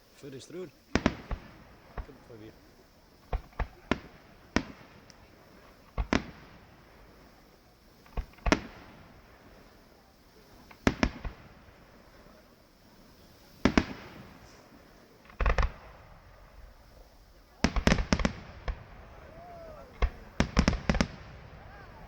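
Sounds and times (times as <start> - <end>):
fireworks exploding: 0.0 - 22.0.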